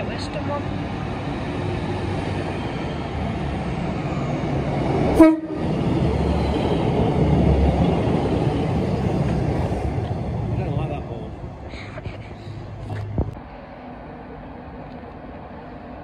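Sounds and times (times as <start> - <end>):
diesel train rumble: 0.0 - 16.0
train horn toot: 5.2 - 5.7.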